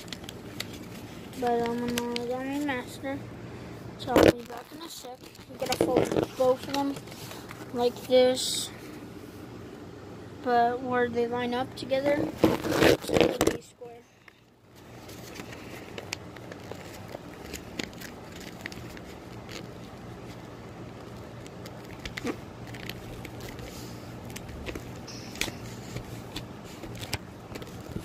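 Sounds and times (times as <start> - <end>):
paper crackles and taps: 0.0 - 2.8, 4.0 - 7.8, 15.0 - 28.0
paper being folded and creased: 0.0 - 2.9, 4.1 - 8.3, 12.2 - 13.6, 14.8 - 28.0
steady low hum: 0.0 - 28.0.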